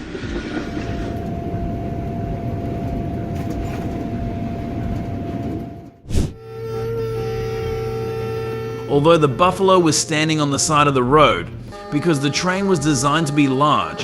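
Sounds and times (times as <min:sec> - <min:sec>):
train rolling rumble: 0:00.2 - 0:06.0.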